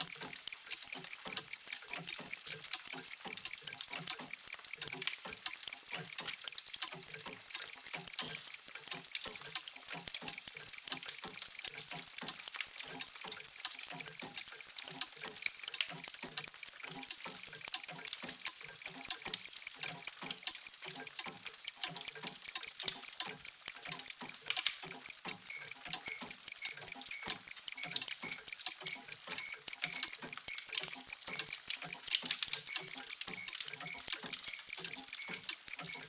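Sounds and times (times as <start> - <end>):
mechanical clocks ticking: 0.0 - 36.0.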